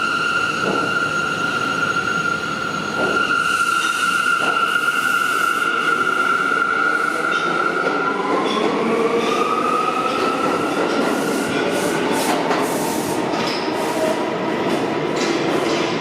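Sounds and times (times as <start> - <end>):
train wheels squealing: 0.0 - 14.2
subway train rumbling: 0.0 - 16.0.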